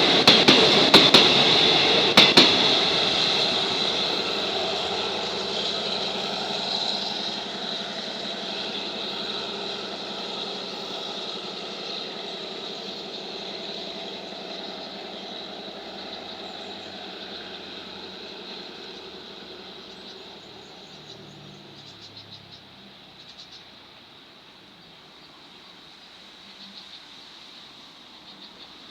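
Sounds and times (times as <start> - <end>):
train running noise: 0.0 - 28.9
faint rapid chirping: 1.5 - 28.9.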